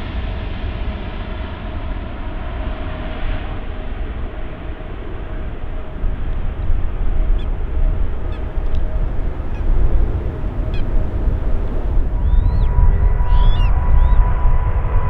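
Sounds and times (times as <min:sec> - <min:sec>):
jet engine rumble: 0:01.5 - 0:15.0
faint steady whine: 0:03.3 - 0:15.0
bird chirps: 0:05.8 - 0:14.4.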